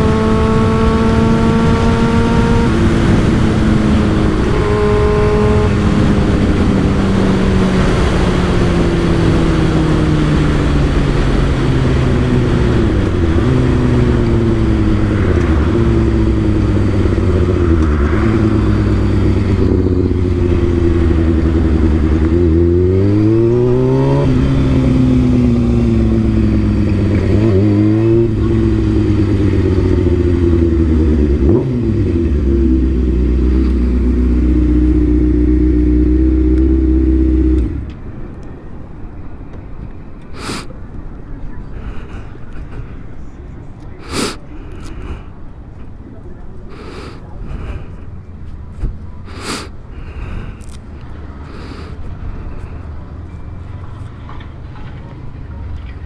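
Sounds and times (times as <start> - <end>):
wind rush: 0.0 - 34.8
motorcycle engine accelerating: 0.0 - 38.4, 47.5 - 56.0.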